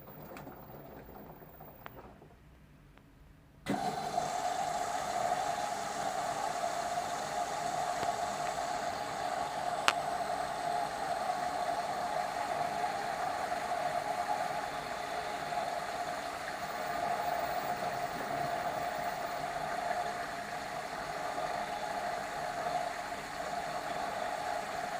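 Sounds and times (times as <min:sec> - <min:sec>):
washing machine drain pump humming: 0:00.0 - 0:02.7, 0:03.7 - 0:24.9.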